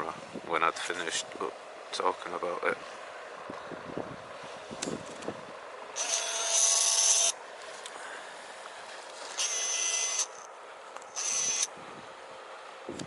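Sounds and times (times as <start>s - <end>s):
camera zoom motor whirring: 6.0s - 7.4s, 9.3s - 10.5s, 11.1s - 11.7s.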